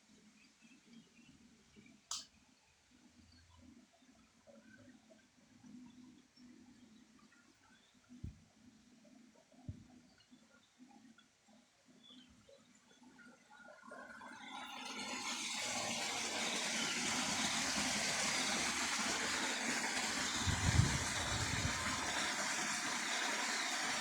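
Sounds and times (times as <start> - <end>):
rushing water: 14.9 - 24.0.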